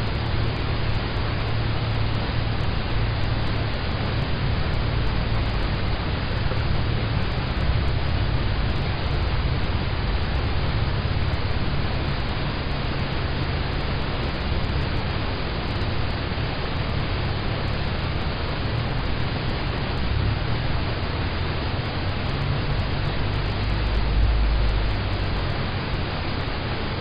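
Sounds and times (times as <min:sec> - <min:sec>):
deep low rumble: 0:00.0 - 0:27.0
rain on a car: 0:00.0 - 0:27.0.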